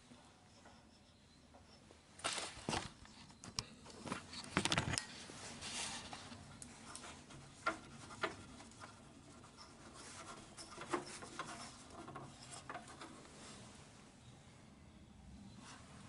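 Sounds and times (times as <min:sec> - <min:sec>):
parts rubbing and scraping: 0:04.1 - 0:13.8
light clicks and knocks: 0:06.3 - 0:13.4.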